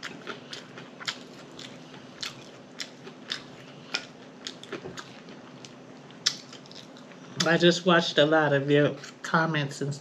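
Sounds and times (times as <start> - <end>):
mouth chewing cheeseburger: 0.0 - 7.6.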